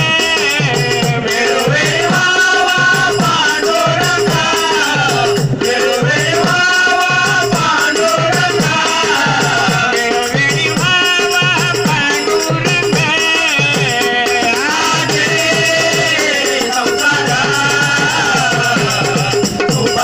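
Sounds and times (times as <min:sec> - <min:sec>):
devotional song melody: 0:00.0 - 0:20.0
jingling rattling percussion: 0:00.0 - 0:20.0.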